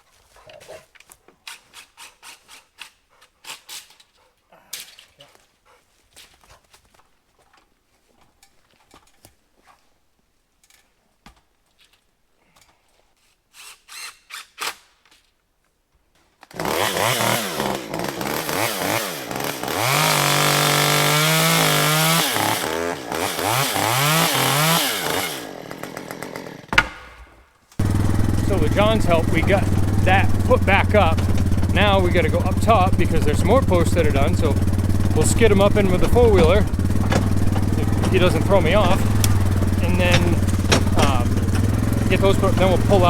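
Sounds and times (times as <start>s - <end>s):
chainsaw revving: 16.5s - 43.0s
faint knocks: 26.7s - 43.0s.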